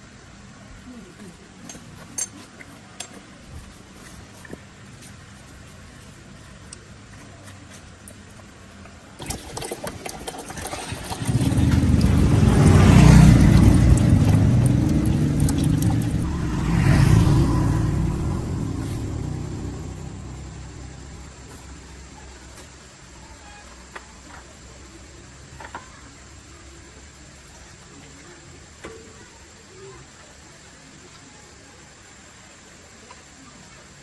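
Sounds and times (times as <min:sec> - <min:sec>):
engine rattling and revving: 0:10.5 - 0:21.2.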